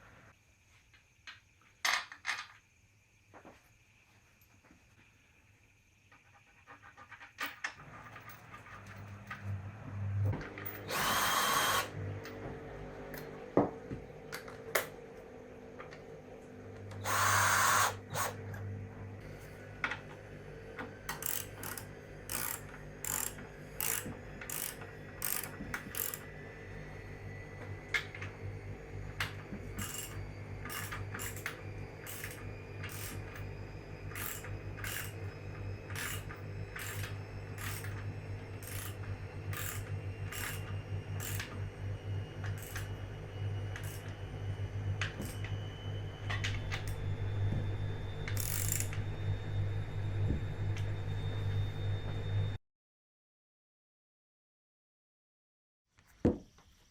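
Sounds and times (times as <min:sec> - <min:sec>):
steady low hum: 0:07.8 - 0:52.6.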